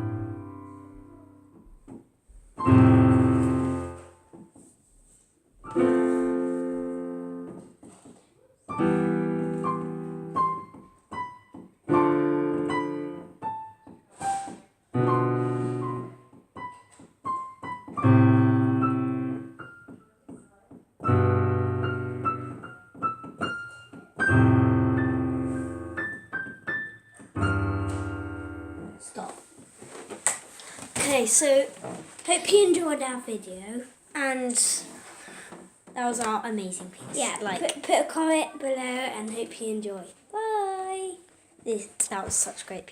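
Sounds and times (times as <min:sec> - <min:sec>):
slow piano piece: 0:00.0 - 0:04.7, 0:05.6 - 0:29.6.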